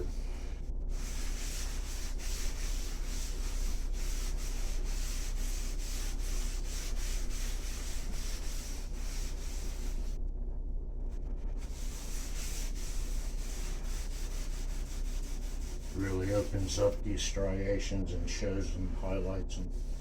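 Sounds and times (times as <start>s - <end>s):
rag scrubbing wood: 0.9s - 10.2s, 11.6s - 17.0s.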